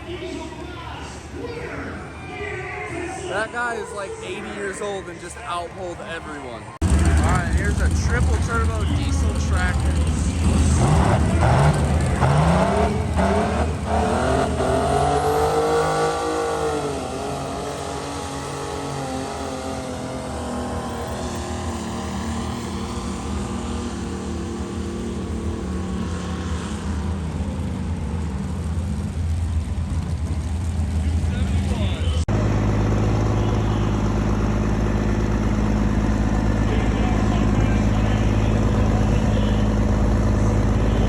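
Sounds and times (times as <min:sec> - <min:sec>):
diesel tractor engine running hard: 0:00.0 - 0:41.0.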